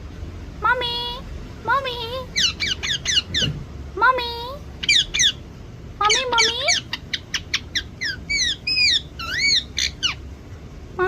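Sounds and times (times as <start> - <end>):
parrot chirps and whistles: 2.3 - 3.6, 4.8 - 5.4, 6.1 - 10.2.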